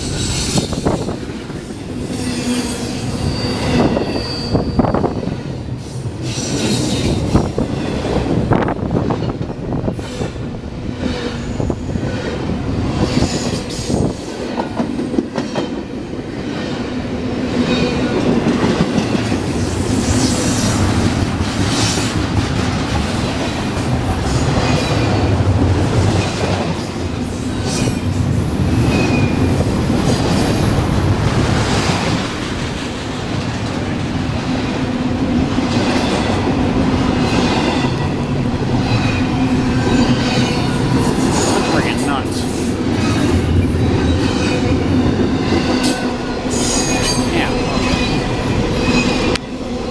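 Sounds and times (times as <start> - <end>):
high wheel squeals: 1.7 - 5.4.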